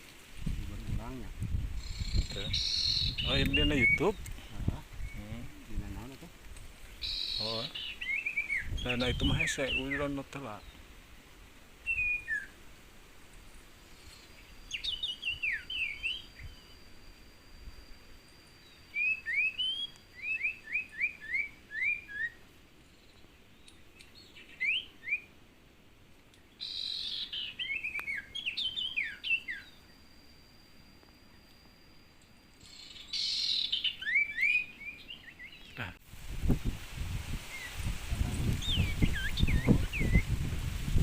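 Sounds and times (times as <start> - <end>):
bird chirps sliding downward: 1.8 - 4.2, 14.0 - 17.5, 18.2 - 22.4, 26.5 - 35.8, 38.6 - 40.4
thin steady high tone: 13.5 - 21.7, 27.6 - 35.0.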